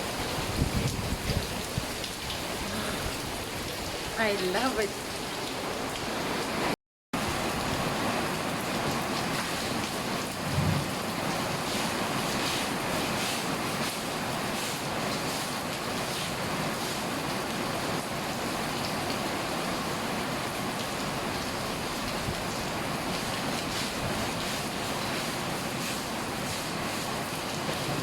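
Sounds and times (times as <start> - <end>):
heavy rain falling: 0.0 - 28.0
low thump: 10.5 - 10.9.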